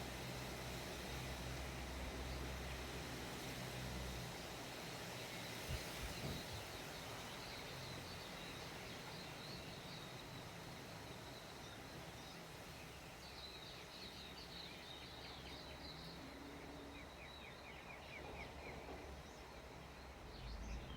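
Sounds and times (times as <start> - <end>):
wind rumbling on microphone: 5.5 - 6.9.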